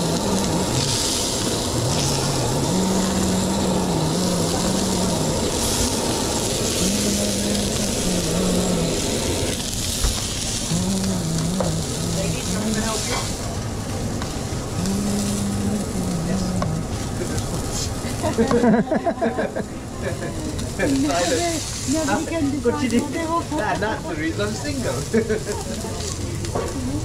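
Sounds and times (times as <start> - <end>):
low voice: 0.0 - 1.0, 1.7 - 9.6, 10.7 - 13.3, 14.8 - 18.8
frying hiss: 0.0 - 27.0.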